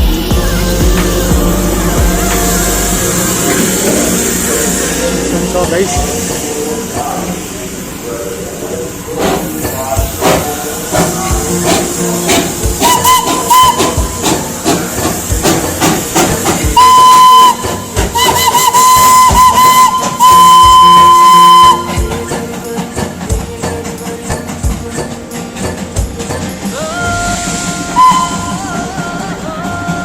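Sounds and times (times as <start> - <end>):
steam hissing: 0.0 - 30.0
steam locomotive whistle: 1.7 - 7.7, 9.2 - 22.7, 27.0 - 30.0.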